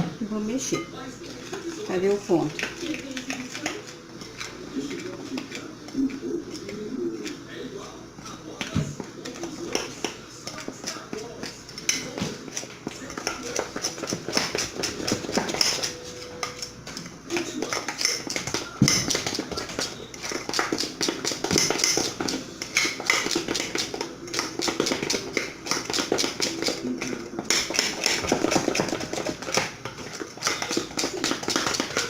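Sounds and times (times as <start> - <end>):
spoon stirring batter in bowl: 0.3 - 32.0.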